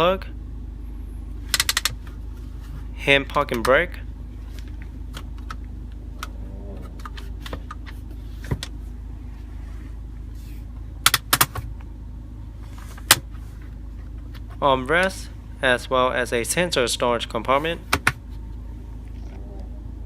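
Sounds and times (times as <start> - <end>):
steady low hum: 0.0 - 20.0
sharp clicks of car fittings: 1.5 - 2.1, 11.0 - 11.7, 13.0 - 13.3.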